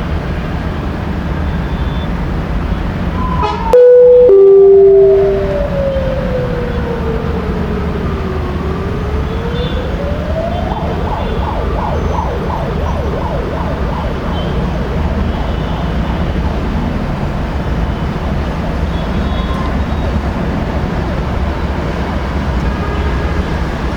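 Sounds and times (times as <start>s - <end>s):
siren wailing and yelping: 3.3s - 7.2s, 8.4s - 16.7s.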